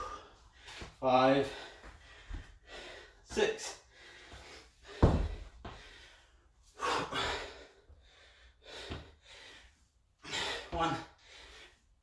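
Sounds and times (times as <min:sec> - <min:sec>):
man breathing hard: 0:00.0 - 0:12.0.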